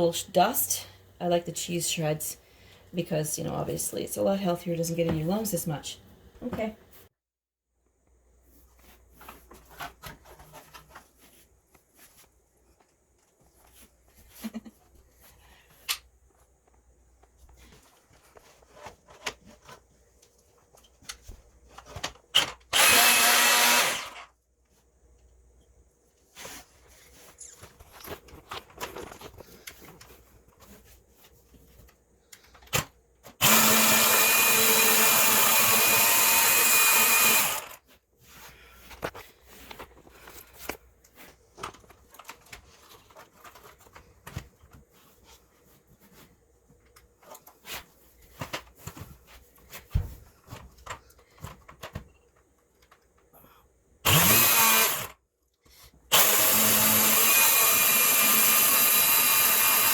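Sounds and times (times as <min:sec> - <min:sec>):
chainsaw running: 0:22.7 - 0:24.3, 0:33.4 - 0:37.8, 0:54.1 - 0:55.1, 0:56.1 - 0:59.9.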